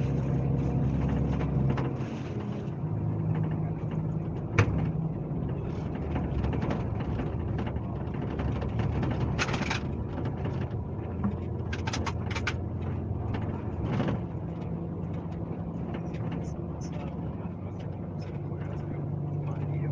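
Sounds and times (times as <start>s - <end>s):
bus diesel engine running: 0.0s - 19.9s.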